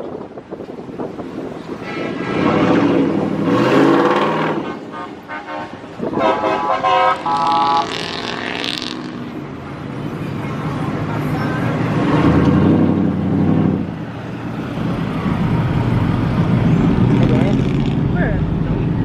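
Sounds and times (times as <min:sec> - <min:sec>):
traffic: 0:00.0 - 0:19.0
pickup truck engine pulling away: 0:01.1 - 0:04.7.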